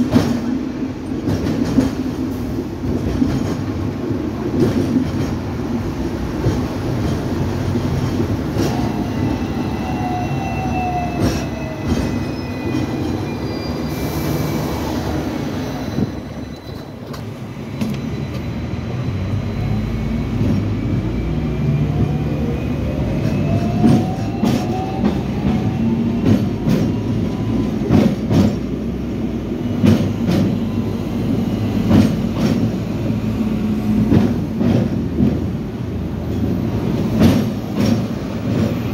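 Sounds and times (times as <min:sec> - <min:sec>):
tram wheels clicking over rail joints: 0:00.0 - 0:09.3, 0:11.1 - 0:13.2, 0:16.4 - 0:18.5, 0:23.1 - 0:38.9
tram rumble: 0:00.0 - 0:38.9.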